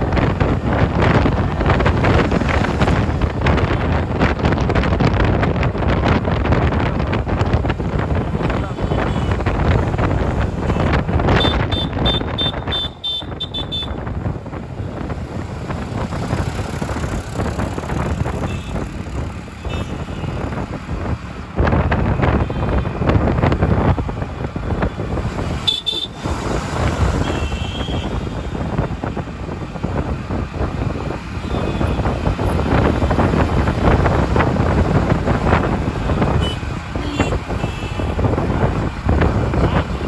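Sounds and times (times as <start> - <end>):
road traffic engines: 0.0 - 40.0
vehicle horns honking: 8.5 - 9.9, 10.5 - 14.0, 18.4 - 18.9, 19.6 - 20.6, 25.6 - 26.3, 27.1 - 28.7, 31.4 - 32.4, 35.5 - 38.4, 39.4 - 40.0.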